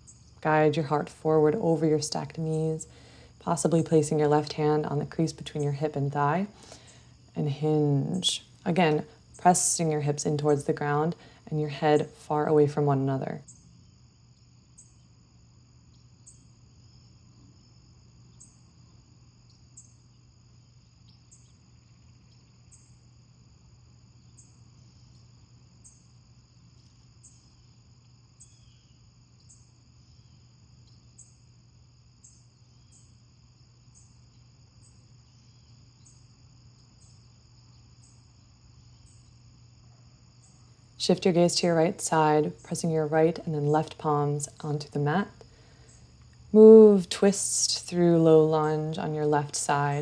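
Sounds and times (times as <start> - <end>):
low steady hum: 0.0 - 13.5, 40.5 - 50.0
crickets chirping: 0.0 - 50.0.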